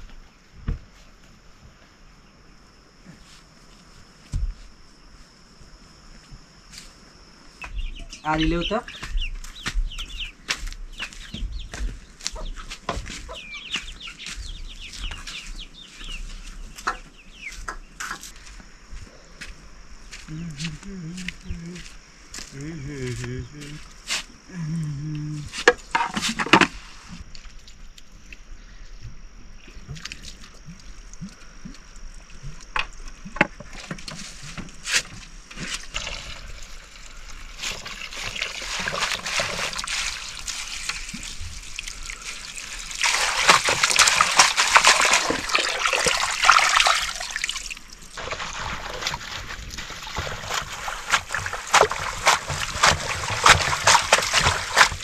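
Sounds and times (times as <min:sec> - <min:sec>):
water splashing in a vessel: 0:35.5 - 0:55.0.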